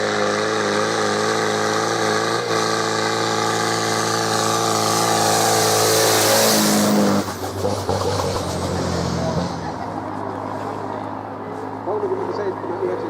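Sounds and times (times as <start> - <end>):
tractor engine working under load: 0.0 - 12.0.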